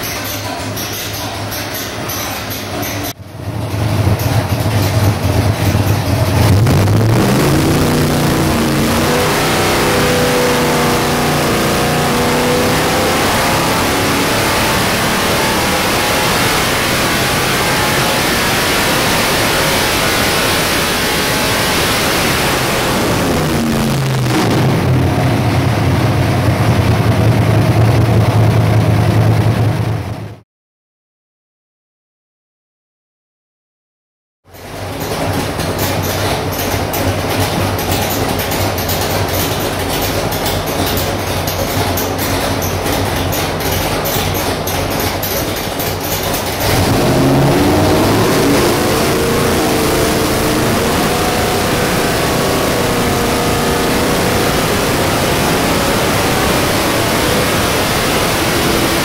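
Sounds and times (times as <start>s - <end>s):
v eight engine revving on dynamometer: 6.2s - 26.4s, 46.6s - 59.0s.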